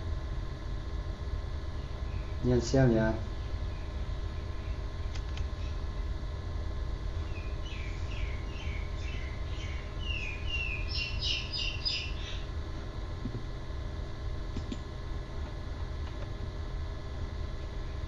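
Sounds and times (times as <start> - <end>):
low hum of room noise: 0.0 - 18.0
bird chirping: 7.2 - 12.5.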